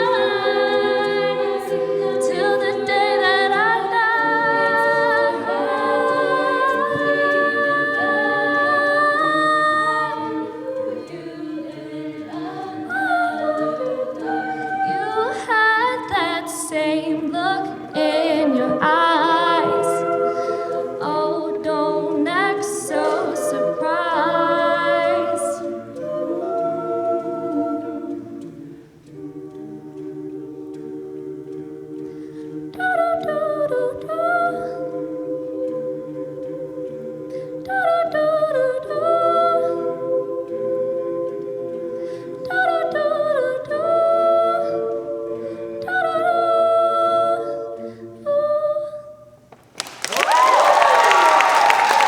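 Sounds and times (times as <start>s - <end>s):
a cappella group singing chords: 0.0s - 52.0s
applause and cheering: 49.7s - 52.0s.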